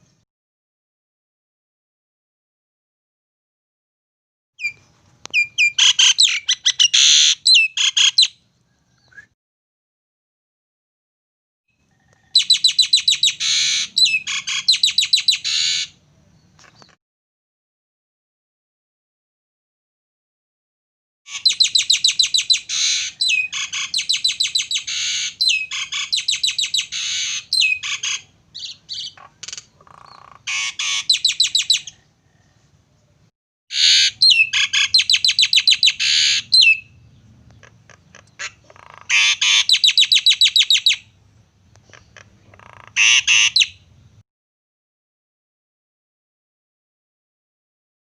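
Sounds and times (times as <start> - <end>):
starling singing harsh chattering: 37.6 - 41.0, 42.0 - 43.8.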